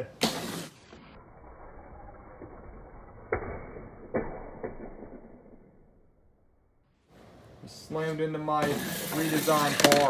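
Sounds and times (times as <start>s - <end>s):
toy cars clattering: 8.7s - 10.0s.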